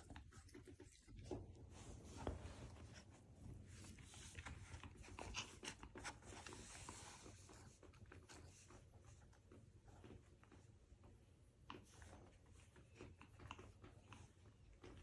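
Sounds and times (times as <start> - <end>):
soft clicks and rustles: 0.0 - 15.0
dog panting: 11.6 - 15.0.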